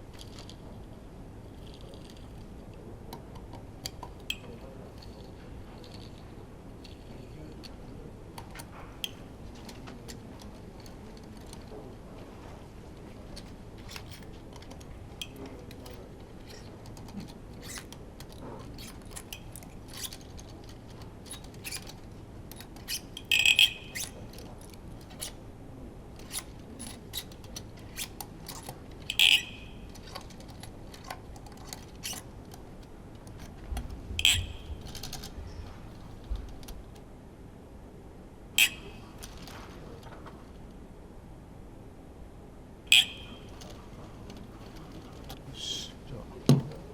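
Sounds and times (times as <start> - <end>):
sharp metallic clinks: 42.9 - 43.7.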